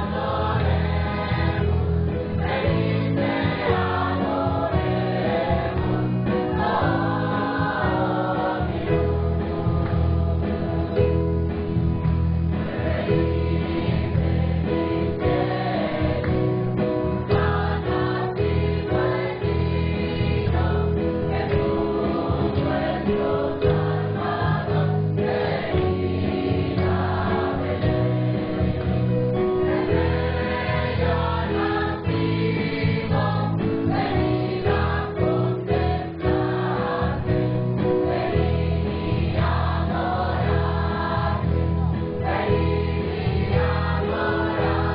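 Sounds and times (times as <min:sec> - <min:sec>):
choir singing: 0:00.0 - 0:11.3, 0:12.5 - 0:44.9.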